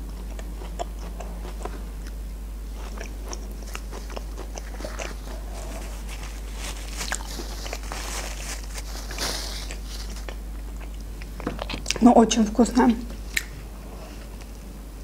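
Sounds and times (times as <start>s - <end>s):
wet mouth clicks chewing: 0.0s - 5.9s, 9.6s - 12.0s, 13.3s - 13.6s
light crunches: 3.6s - 11.0s.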